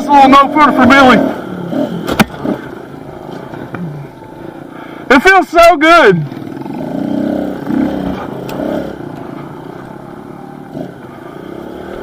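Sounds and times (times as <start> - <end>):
small motorcycle engine revving: 0.2 - 3.5, 6.2 - 12.0.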